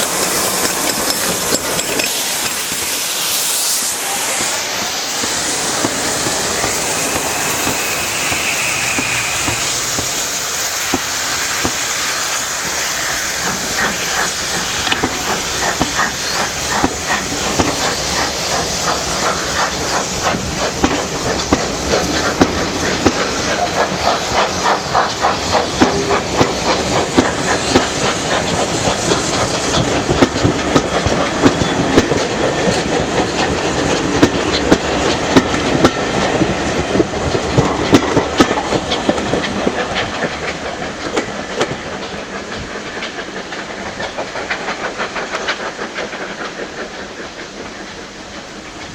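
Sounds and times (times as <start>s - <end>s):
wheels clattering over rails: 0.0s - 3.0s, 4.4s - 47.3s
hiss of steam: 0.0s - 48.9s.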